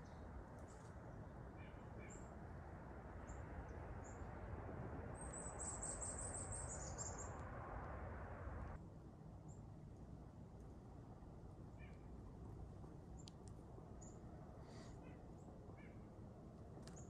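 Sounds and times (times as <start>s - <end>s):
rushing forest background: 0.0s - 17.0s
songbird high chirps: 5.2s - 7.6s.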